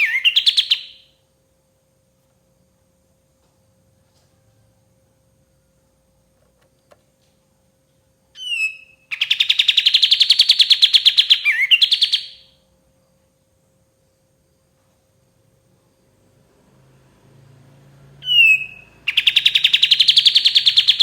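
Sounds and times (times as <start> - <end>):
songbird rattling trill: 0.0 - 1.1, 8.4 - 12.5, 18.2 - 21.0.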